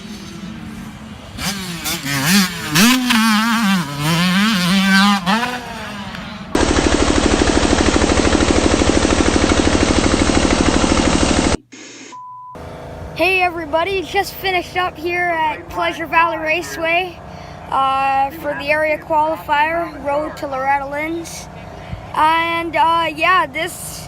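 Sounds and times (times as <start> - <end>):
dirt bike engine revving: 0.0 - 11.7
rapid engine pulsing: 3.9 - 11.6, 12.6 - 24.0.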